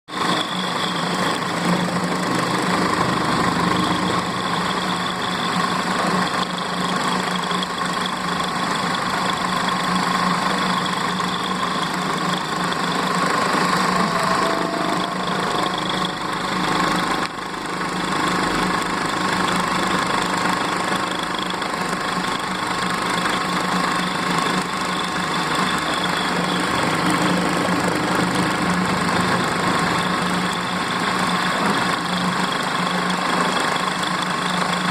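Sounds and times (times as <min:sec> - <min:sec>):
milling machine hum with high whine: 0:00.1 - 0:34.9.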